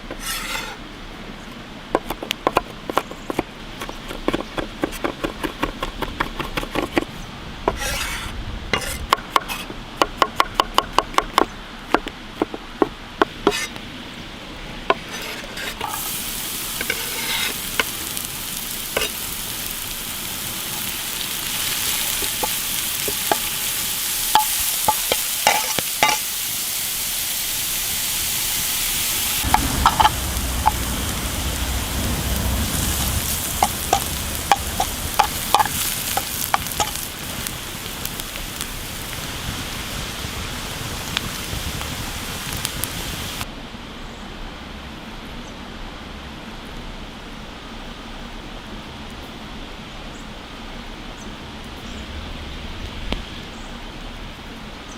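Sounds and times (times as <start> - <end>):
food sizzling in a pan: 15.1 - 43.5
low rumble: 29.0 - 43.4
utensil tapping on pan: 33.6 - 37.0.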